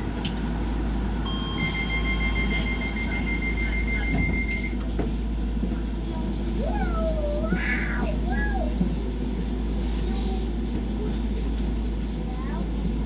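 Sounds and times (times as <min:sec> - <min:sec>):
steady train hum: 0:00.0 - 0:13.0
rapid pulsing high beep: 0:01.3 - 0:04.7.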